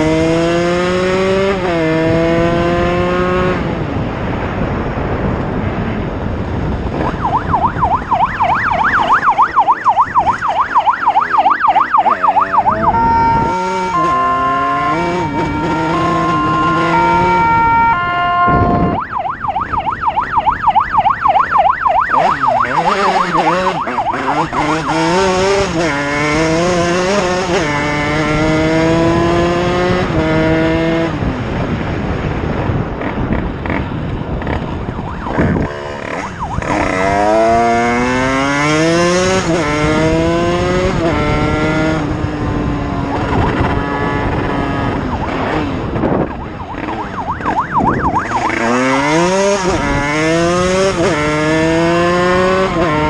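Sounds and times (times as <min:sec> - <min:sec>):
motorcycle engine accelerating: 0:00.0 - 0:53.0
siren warbling: 0:06.9 - 0:30.4, 0:34.5 - 0:42.1, 0:42.9 - 0:53.0.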